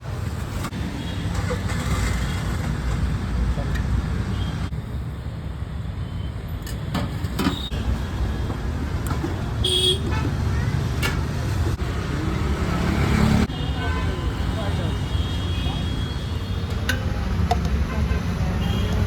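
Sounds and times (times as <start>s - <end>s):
passing vehicles rumble: 0.0s - 6.0s, 6.6s - 15.1s.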